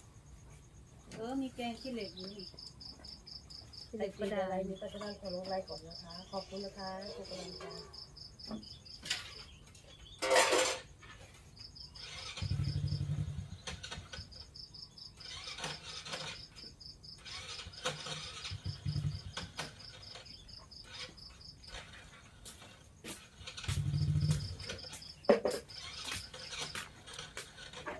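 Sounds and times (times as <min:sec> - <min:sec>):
insects chirping: 0:00.0 - 0:27.9
loud noisy clatter: 0:21.0 - 0:27.9.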